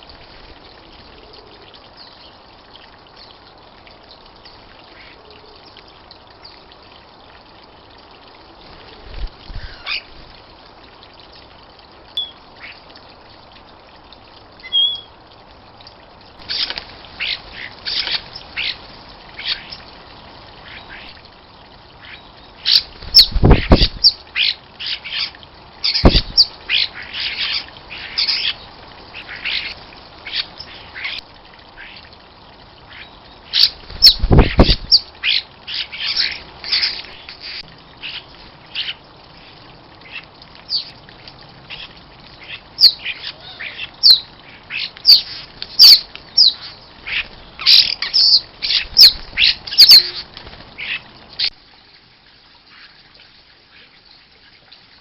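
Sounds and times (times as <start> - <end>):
birds chirping: 40.0 - 41.0, 41.7 - 51.5.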